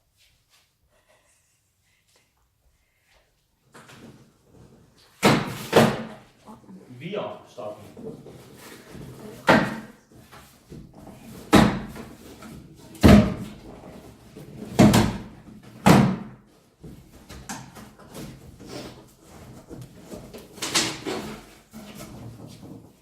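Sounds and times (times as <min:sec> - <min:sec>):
cardboard carton knocks and thumps: 0:08.2 - 0:18.6.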